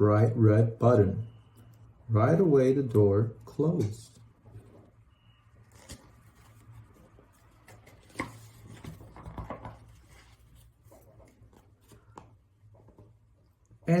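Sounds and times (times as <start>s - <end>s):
soft rustling: 5.7s - 13.1s.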